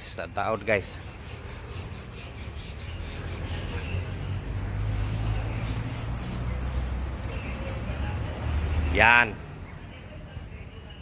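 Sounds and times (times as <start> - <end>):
sandpaper rubbing on metal: 0.4 - 9.0.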